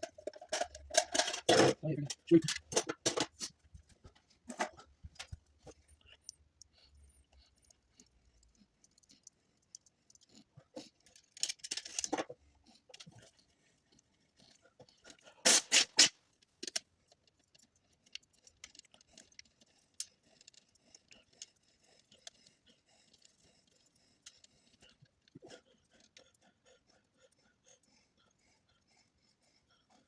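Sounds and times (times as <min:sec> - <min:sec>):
scratchy rattle: 0:00.0 - 0:06.2, 0:07.5 - 0:13.8.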